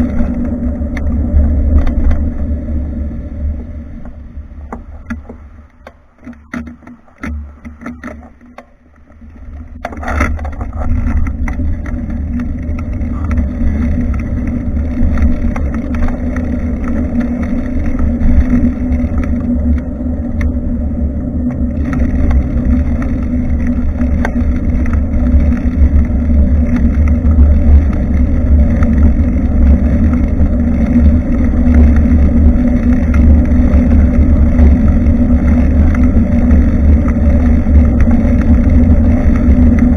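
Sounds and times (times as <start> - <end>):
wind buffeting microphone: 0.0 - 8.0, 9.3 - 39.9
tyre and road rumble: 0.0 - 39.9
clicks and knocks: 4.0 - 12.0.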